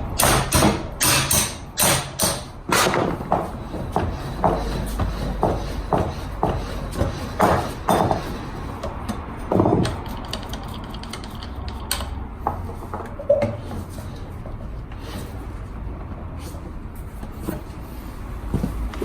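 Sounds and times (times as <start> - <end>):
tools clicking and knocking: 0.2 - 3.2, 4.0 - 13.7.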